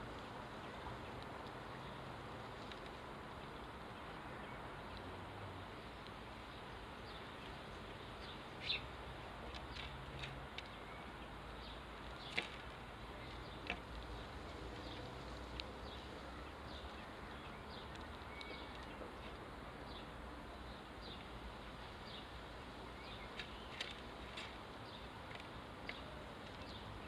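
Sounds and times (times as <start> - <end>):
sparrows chirping: 5.8 - 27.0.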